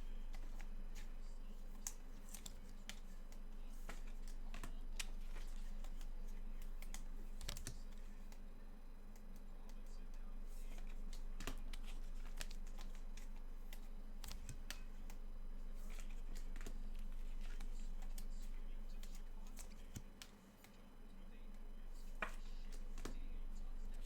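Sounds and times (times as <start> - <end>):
hands clicking and tapping at desk: 0.0 - 20.8, 22.0 - 24.0
steady low hum: 0.0 - 24.0.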